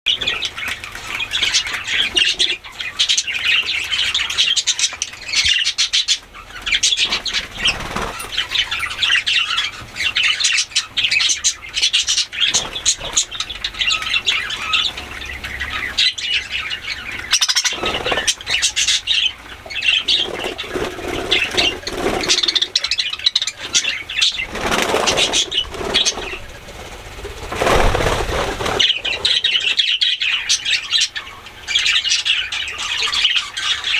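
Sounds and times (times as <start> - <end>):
budgerigars chattering: 0.1 - 33.9
wings flapping: 6.6 - 8.8, 11.9 - 15.1, 17.4 - 19.1, 19.7 - 30.0.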